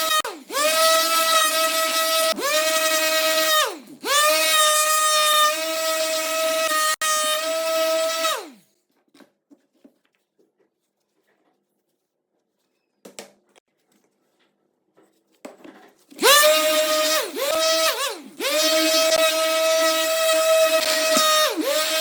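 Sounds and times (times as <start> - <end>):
power tool motor whining: 0.0 - 8.6, 16.2 - 22.0.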